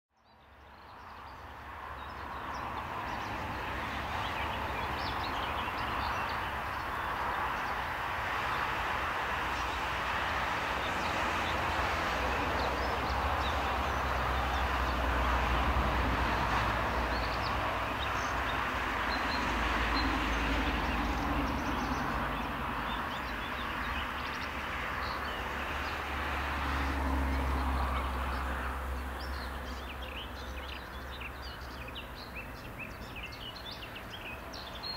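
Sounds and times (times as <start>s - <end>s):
small birds chirping: 27.2s - 34.9s.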